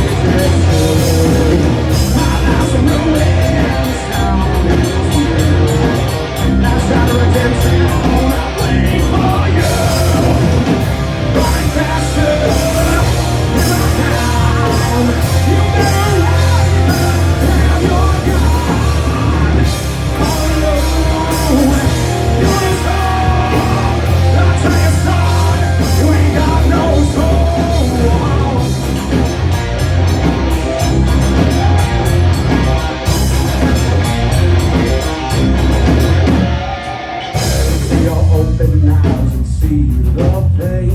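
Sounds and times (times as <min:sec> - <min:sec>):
person singing: 0:00.0 - 0:28.7
live rock band playing: 0:00.0 - 0:40.9.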